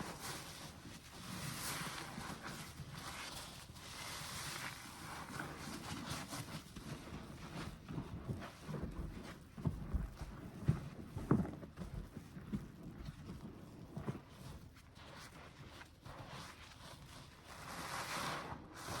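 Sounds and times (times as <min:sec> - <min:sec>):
wet sponge squelching: 0:00.0 - 0:19.0.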